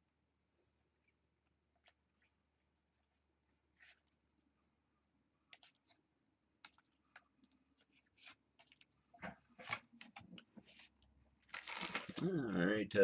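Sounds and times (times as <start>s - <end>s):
card packs clicking and rustling: 11.4s - 12.3s.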